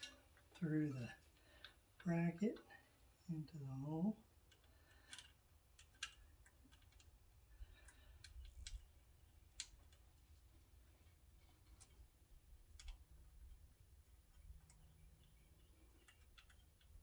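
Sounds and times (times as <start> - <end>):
metallic clicks and taps: 4.4 - 7.2, 7.8 - 10.1, 12.7 - 17.0.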